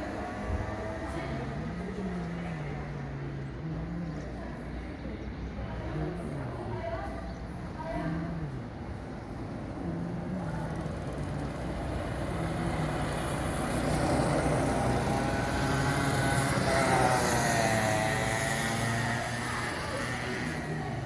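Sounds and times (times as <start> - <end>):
go-kart engine running: 0.0 - 4.2, 9.0 - 21.0.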